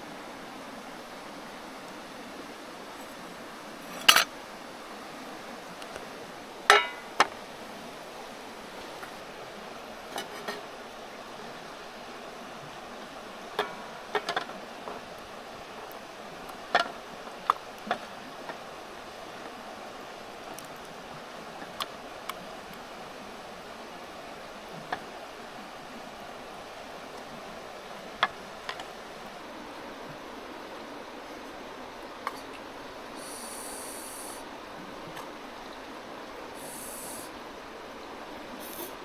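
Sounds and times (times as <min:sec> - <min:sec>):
river hissing: 0:00.0 - 0:39.0
metal cookware clinking: 0:06.7 - 0:07.3.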